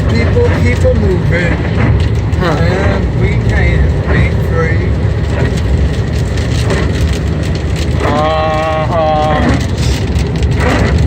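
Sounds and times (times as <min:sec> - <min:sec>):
person speaking: 0:00.0 - 0:05.1
car road and engine noise: 0:00.0 - 0:11.0.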